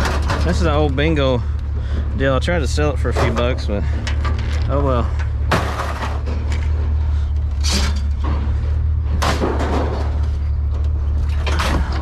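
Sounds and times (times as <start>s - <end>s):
low hum: 0.0s - 12.0s
scrap crashing onto a pile: 5.5s - 6.5s.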